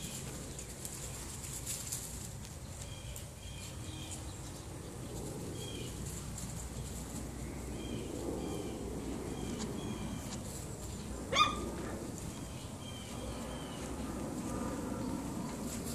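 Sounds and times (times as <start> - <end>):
low background hum: 0.0 - 15.9
puppy yipping: 11.3 - 11.8.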